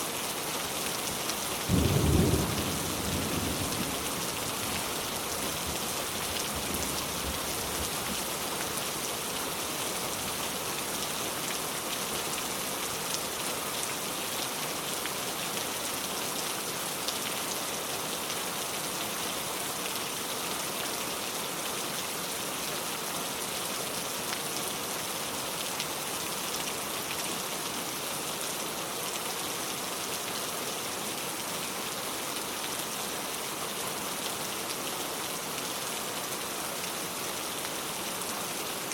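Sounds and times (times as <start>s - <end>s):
rain on a car: 0.2s - 20.8s.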